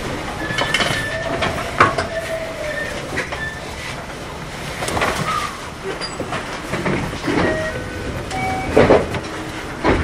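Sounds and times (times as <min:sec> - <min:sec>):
train rumble on rails: 0:00.0 - 0:10.0
wheels knocking and clattering: 0:00.0 - 0:10.0
high wheel squeaks: 0:00.4 - 0:03.9, 0:05.2 - 0:06.6, 0:07.2 - 0:09.8.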